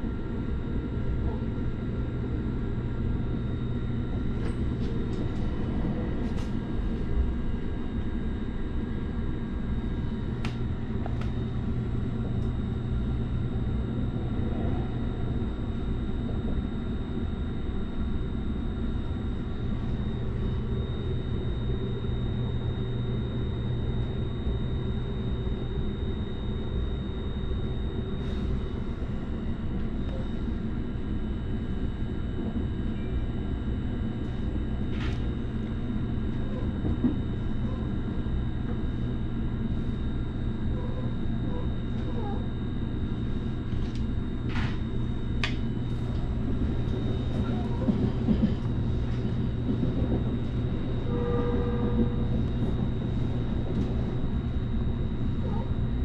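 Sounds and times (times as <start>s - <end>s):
constant hum: 0.0s - 56.0s
train cabin rumble: 3.2s - 16.9s, 32.2s - 40.0s, 40.8s - 56.0s.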